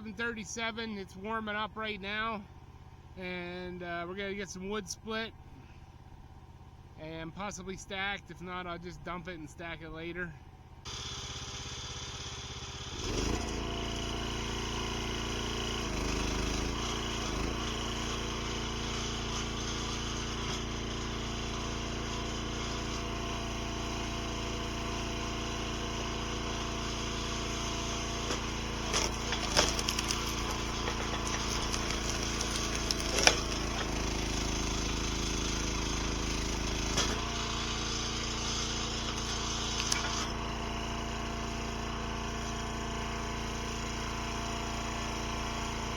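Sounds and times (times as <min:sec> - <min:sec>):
log splitter engine running: 0:00.0 - 0:45.9
wood cracking and snapping: 0:28.3 - 0:34.4, 0:39.2 - 0:40.3.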